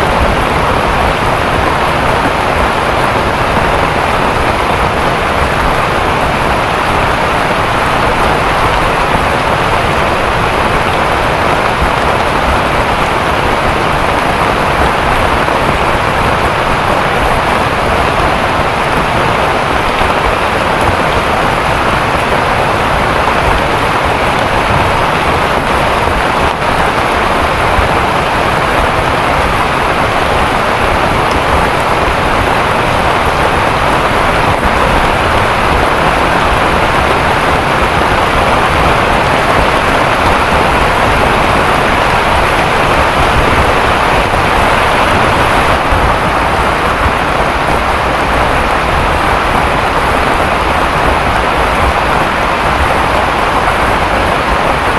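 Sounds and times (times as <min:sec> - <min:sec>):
heavy rain in a forest: 0:00.0 - 0:54.9.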